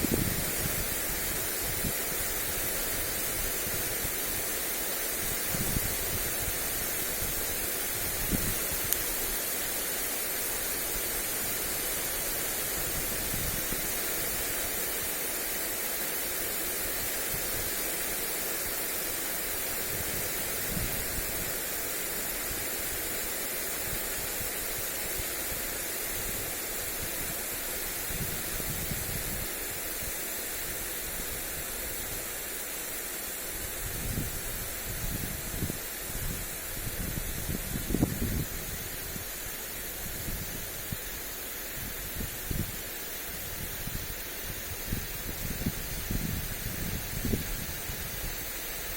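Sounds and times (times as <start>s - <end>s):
wind on microphone: 0.0s - 4.6s, 5.2s - 9.4s, 11.0s - 14.8s, 19.8s - 21.7s, 23.8s - 32.3s, 33.6s - 48.9s
sprinkler spraying water: 0.0s - 48.9s.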